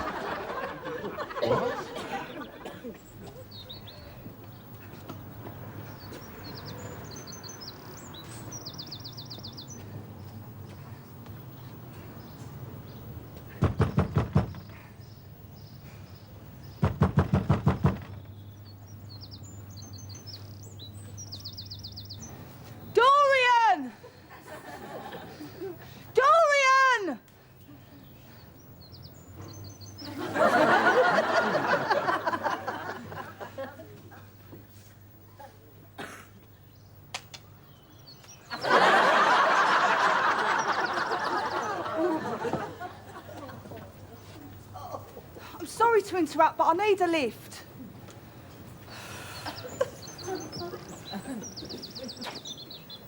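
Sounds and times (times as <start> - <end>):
studio audience laughing: 0.0 - 2.7, 30.0 - 34.0, 38.5 - 43.9
small birds chirping: 0.1 - 53.0
hard knocking on a door: 13.6 - 14.8, 16.8 - 18.3.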